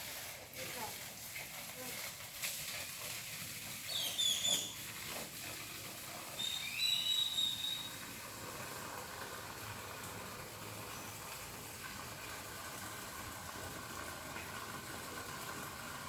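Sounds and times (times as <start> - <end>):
bird whistle: 3.9 - 4.8, 6.4 - 8.0
birds chirping: 3.9 - 4.8, 6.4 - 8.0.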